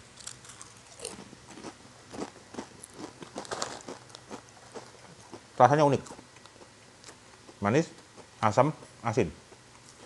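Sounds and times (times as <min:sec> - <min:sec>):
chips being chewed: 0:00.1 - 0:08.5.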